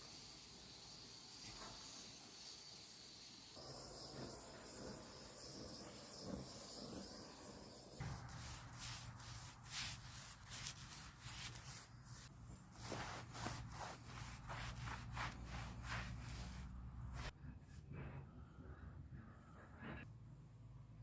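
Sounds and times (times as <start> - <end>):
rubbing strokes on wood: 3.6 - 17.4.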